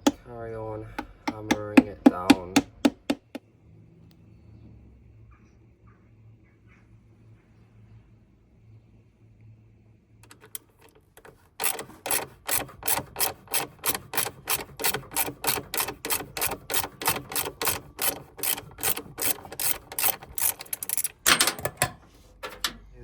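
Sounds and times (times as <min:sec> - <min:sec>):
hammer blows on metal bearing: 0:01.0 - 0:03.4.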